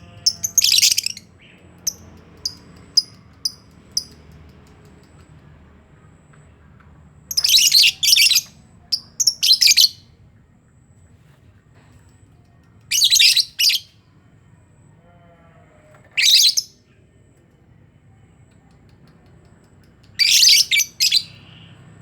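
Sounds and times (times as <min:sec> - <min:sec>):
lovebirds shrill chattering: 0:00.0 - 0:04.1, 0:07.3 - 0:10.0, 0:12.9 - 0:13.9, 0:16.2 - 0:16.7, 0:20.2 - 0:21.5.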